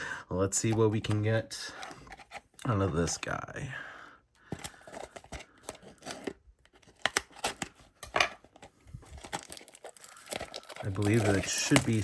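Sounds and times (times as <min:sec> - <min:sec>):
paper crackling and tearing: 0:09.2 - 0:12.0.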